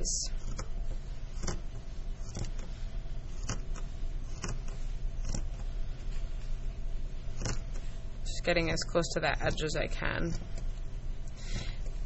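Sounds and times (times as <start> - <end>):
steady low hum: 0.0 - 12.0
scissors snipping fabric: 0.4 - 2.7, 3.3 - 5.6.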